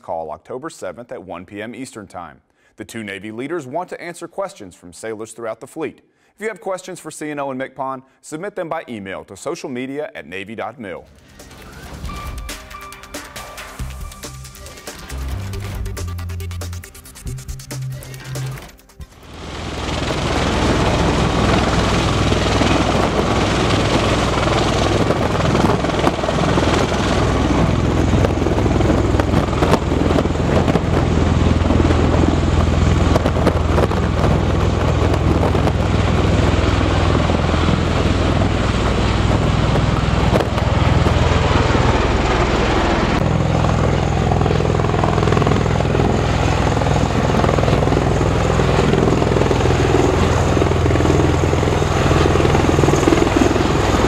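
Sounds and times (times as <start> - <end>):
helicopter rotor and engine: 18.5 - 54.0.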